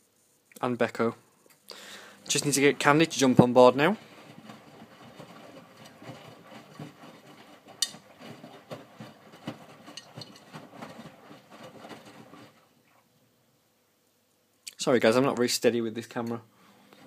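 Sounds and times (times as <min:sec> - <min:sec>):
washing machine drum turning: 0:02.3 - 0:12.6.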